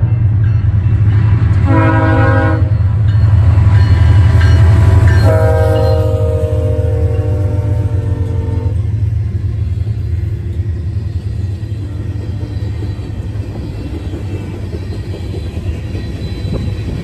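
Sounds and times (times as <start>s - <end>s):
passing train rumble: 0.0s - 17.0s
locomotive air horn: 1.6s - 2.8s, 5.2s - 8.8s.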